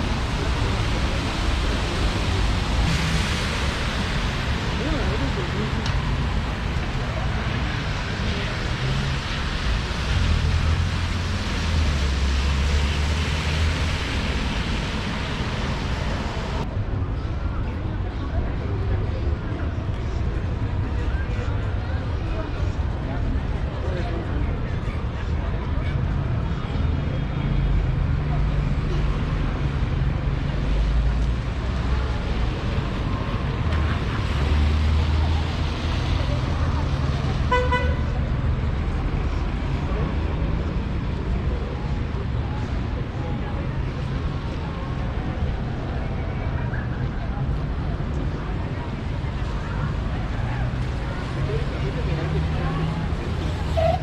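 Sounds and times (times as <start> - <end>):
traffic rumbling past: 0.0 - 16.7
street noise hiss: 0.0 - 54.0.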